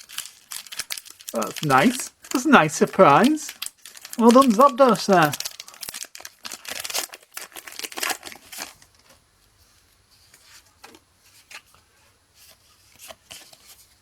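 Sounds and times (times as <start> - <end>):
trading cards being handled: 0.0 - 6.0
foil wrapper crinkling: 0.0 - 9.1.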